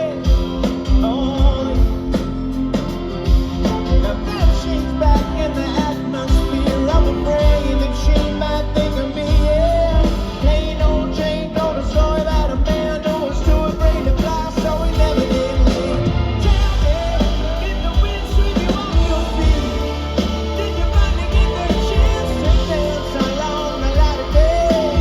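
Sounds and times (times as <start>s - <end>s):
live rock band playing: 0.0s - 25.0s
person singing: 0.0s - 25.0s.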